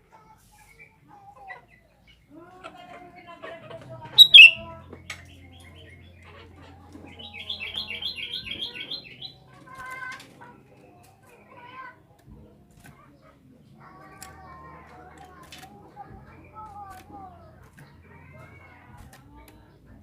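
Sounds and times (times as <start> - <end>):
bulbul calling: 4.2 - 4.7.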